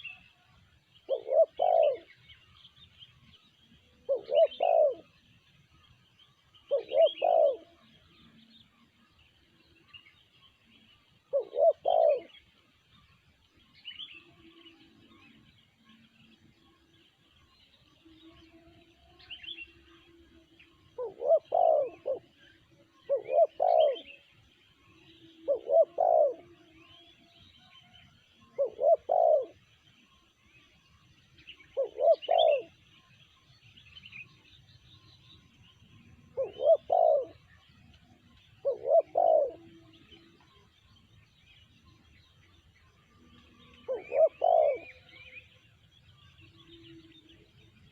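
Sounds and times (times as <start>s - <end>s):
small birds chirping: 0.0s - 47.9s
dove cooing: 1.1s - 2.2s, 4.0s - 5.2s, 6.7s - 7.9s, 11.3s - 12.4s, 20.9s - 24.2s, 25.3s - 26.6s, 28.4s - 29.6s, 31.7s - 32.8s, 36.3s - 37.5s, 38.5s - 40.6s, 43.5s - 45.4s.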